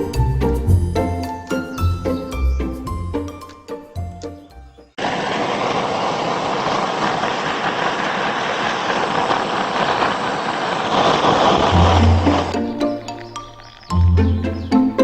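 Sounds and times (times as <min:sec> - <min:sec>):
loud steady rushing noise: 0:05.0 - 0:12.6.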